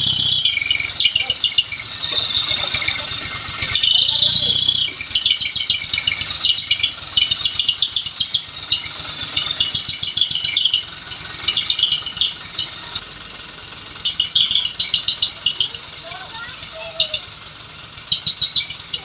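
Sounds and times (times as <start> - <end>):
high-pitched chirps: 0.0 - 13.0, 14.0 - 17.4, 18.1 - 19.0
truck engine running: 0.0 - 19.0.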